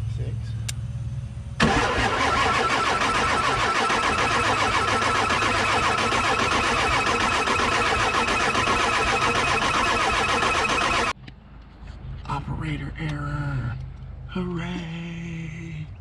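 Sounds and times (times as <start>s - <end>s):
engine starter cranking: 1.6s - 11.2s.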